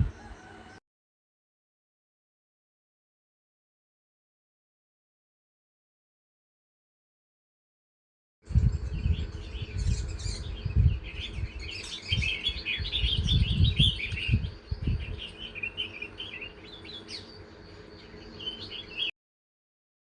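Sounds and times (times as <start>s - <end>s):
small birds chirping: 8.5s - 19.1s.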